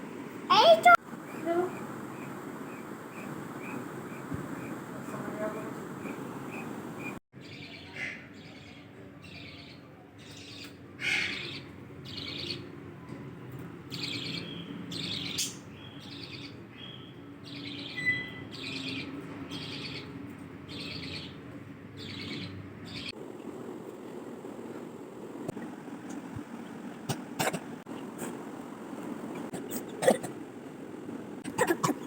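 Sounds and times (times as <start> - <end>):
budgerigars chirping: 1.3 - 7.2.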